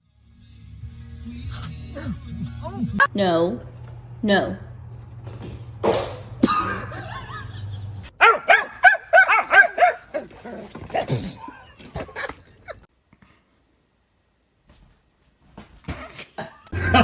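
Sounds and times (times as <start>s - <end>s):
dog yipping: 8.2s - 10.5s.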